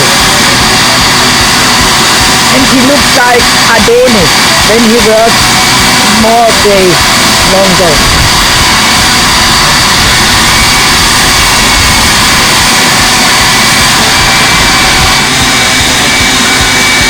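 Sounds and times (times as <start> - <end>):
electric power sander running: 0.0 - 17.0.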